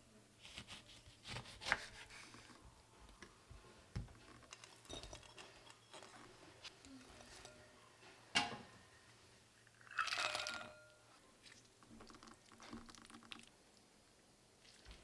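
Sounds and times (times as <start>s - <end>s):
bowls and utensils clattering: 4.5s - 6.2s, 7.1s - 8.7s, 9.9s - 11.0s.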